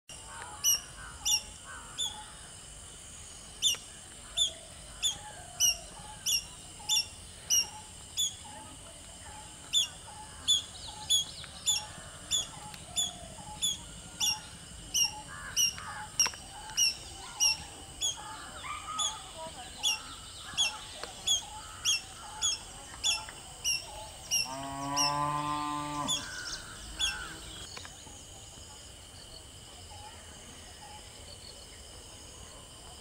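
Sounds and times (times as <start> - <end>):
faint bird chirps: 0.1 - 28.5.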